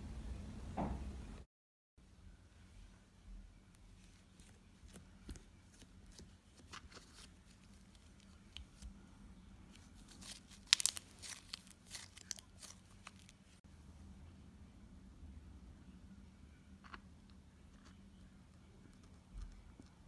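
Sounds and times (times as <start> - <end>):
slime clicks and crackles: 10.0 - 13.4.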